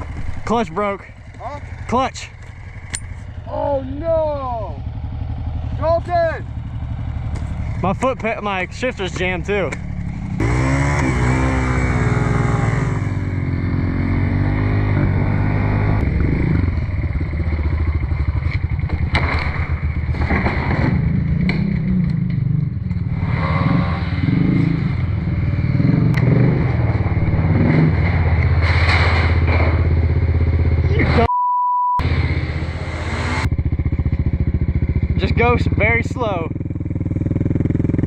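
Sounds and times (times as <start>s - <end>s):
pit bike engines revving: 0.0s - 31.3s, 32.0s - 38.0s
clatter: 16.9s - 24.0s, 26.1s - 30.4s
censor bleep: 31.1s - 32.0s.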